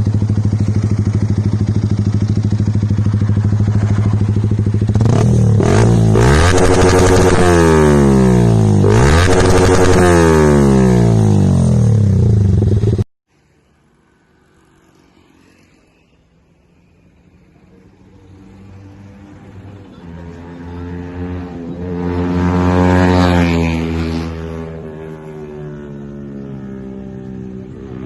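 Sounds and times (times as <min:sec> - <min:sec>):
motorcycle engine revving: 0:00.0 - 0:13.1, 0:18.3 - 0:28.0.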